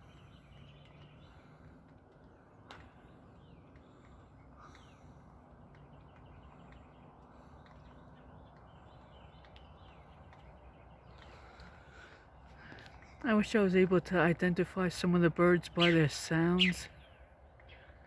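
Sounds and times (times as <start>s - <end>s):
faint songbirds calling: 0.0s - 18.0s.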